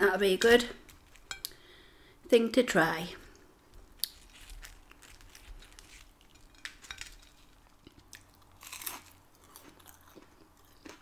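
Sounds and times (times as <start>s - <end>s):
food crunch: 3.9s - 11.0s
close-up chewing: 4.0s - 11.0s.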